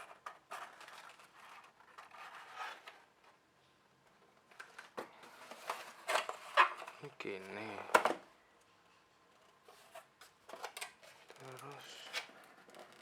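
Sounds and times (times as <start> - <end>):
packaging scraping and rubbing: 11.0 - 13.0.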